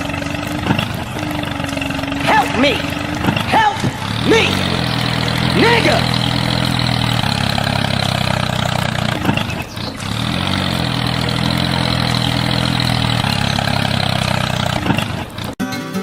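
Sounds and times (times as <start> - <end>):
tractor engine idling: 0.0 - 15.6.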